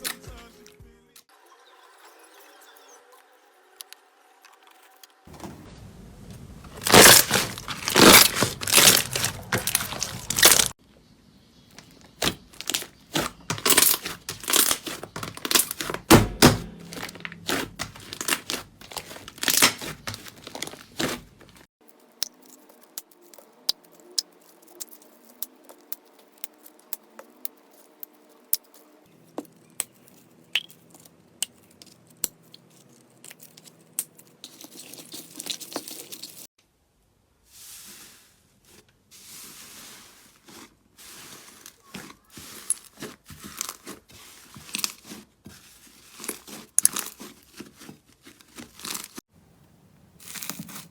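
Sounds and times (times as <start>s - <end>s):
slime crackling and tearing: 6.7s - 10.8s, 11.8s - 21.7s, 41.2s - 49.2s, 50.2s - 50.9s.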